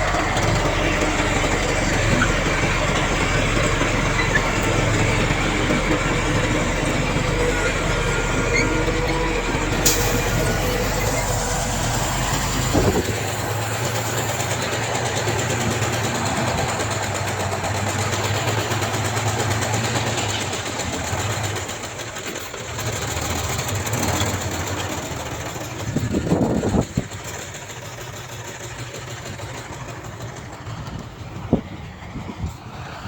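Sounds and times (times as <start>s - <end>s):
diesel engine running: 0.0s - 33.0s
metal clank or scrape: 9.7s - 14.6s.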